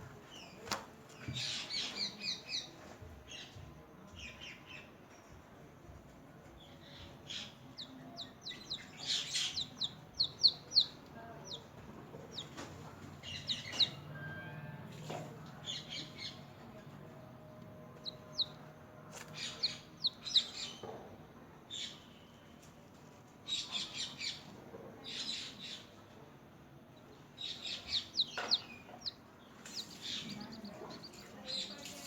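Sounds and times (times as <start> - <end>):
chicks peeping: 6.9 - 20.9, 27.4 - 32.0.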